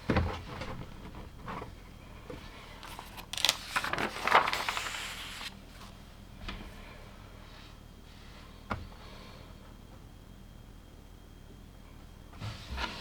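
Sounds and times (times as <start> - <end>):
rustling: 2.7 - 5.9.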